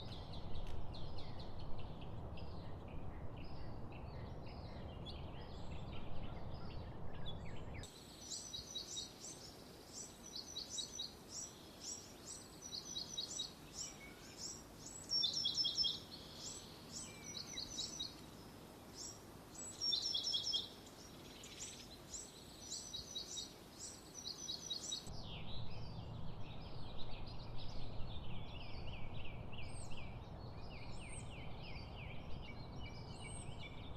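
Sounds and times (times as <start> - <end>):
birds singing and chirping: 0.0 - 33.9.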